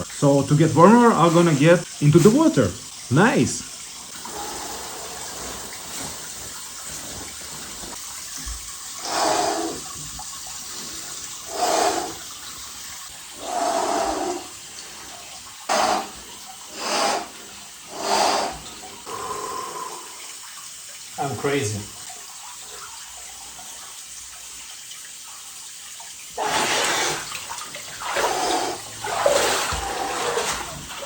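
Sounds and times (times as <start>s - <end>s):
water trickling and sloshing: 0.0s - 31.0s
person breathing heavily: 15.7s - 20.3s.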